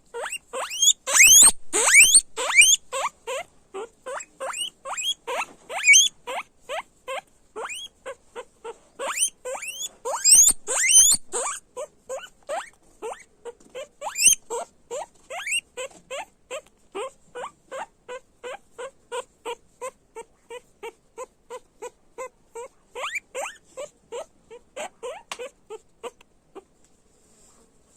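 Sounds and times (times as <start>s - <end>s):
guinea pig squealing: 0.1s - 26.7s.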